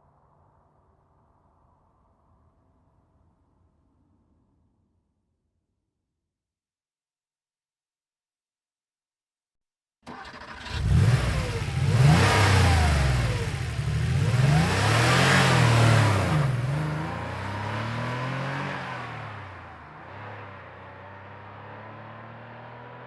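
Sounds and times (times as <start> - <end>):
car engine cranking and revving: 10.1 - 23.0.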